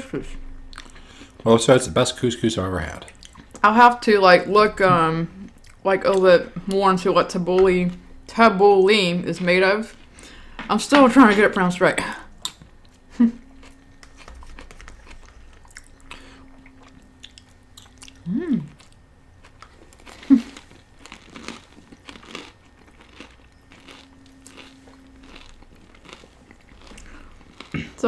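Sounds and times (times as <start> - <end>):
chewing and crunching food: 0.6 - 1.7, 2.8 - 3.7, 5.4 - 8.3, 9.4 - 11.2, 12.0 - 28.0
closed-mouth hums: 12.0 - 19.0.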